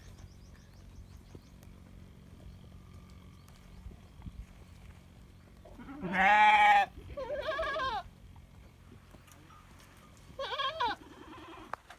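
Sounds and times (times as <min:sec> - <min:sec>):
sheep and goats bleating: 0:05.7 - 0:08.2, 0:10.2 - 0:11.9.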